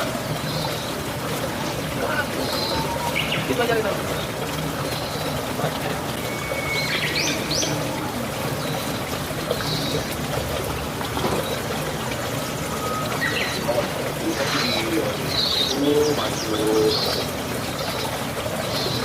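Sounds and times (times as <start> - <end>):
pigeons chirping: 11.3 - 19.0.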